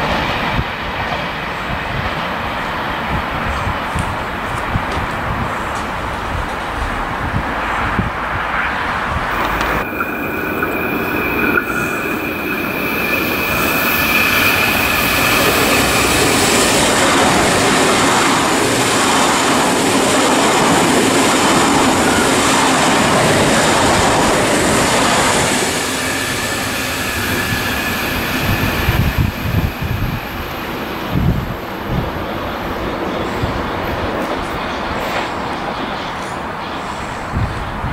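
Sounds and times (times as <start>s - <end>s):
electric train passing: 0.0s - 37.9s
high-pitched squeal: 8.7s - 33.6s.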